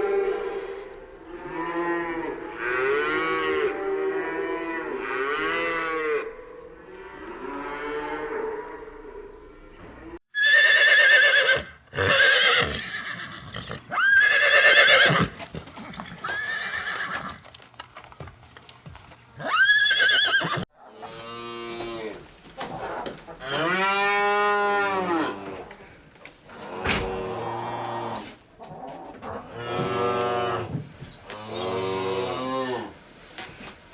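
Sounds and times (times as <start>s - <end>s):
horse whinnying: 10.3s - 15.4s, 16.0s - 17.4s, 19.4s - 20.7s.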